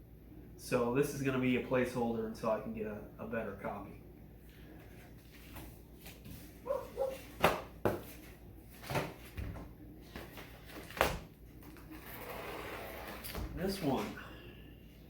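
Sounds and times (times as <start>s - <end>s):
dog bark or whine: 6.6s - 7.3s.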